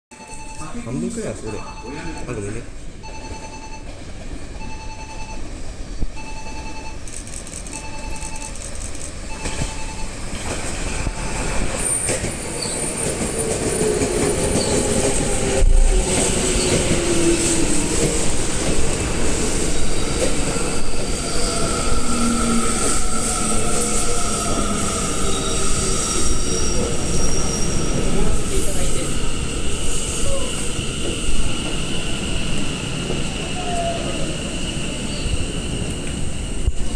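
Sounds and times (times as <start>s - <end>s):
beeping tone: 0.1s - 3.9s, 4.6s - 11.2s
electric train braking: 4.6s - 36.9s
wheel squeal: 11.8s - 17.5s, 19.7s - 36.9s.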